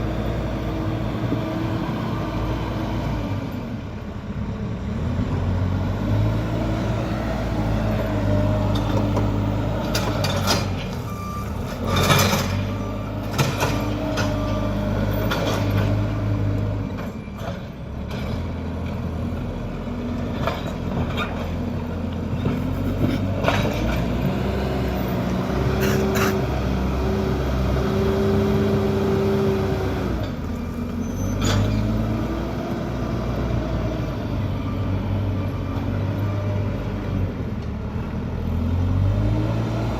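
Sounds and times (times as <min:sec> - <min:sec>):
diesel engine revving: 0:00.0 - 0:39.9
reversing alarm beeping: 0:10.9 - 0:13.2.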